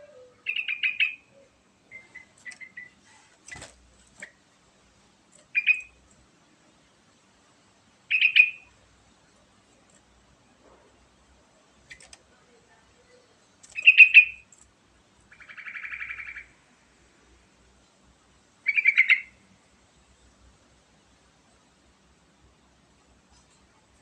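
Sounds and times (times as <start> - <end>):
bird chirping: 0.0 - 4.4, 5.4 - 6.0, 8.1 - 9.4, 12.9 - 14.6, 15.3 - 16.6, 18.6 - 19.5.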